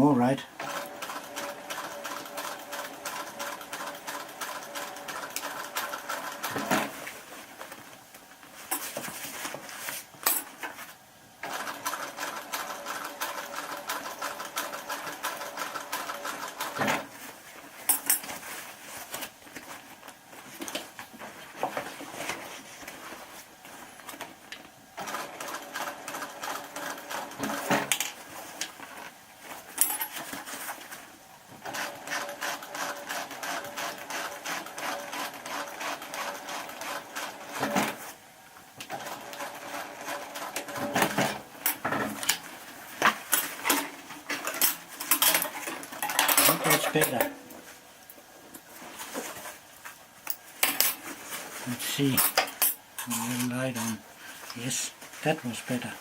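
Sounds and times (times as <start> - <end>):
sewing machine motor humming: 0.6 - 6.6, 31.7 - 37.6.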